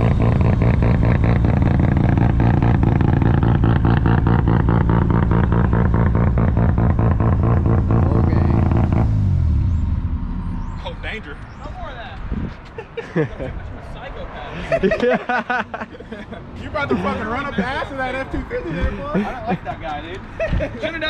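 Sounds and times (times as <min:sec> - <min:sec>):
car engine and exhaust revving hard: 0:00.0 - 0:12.6.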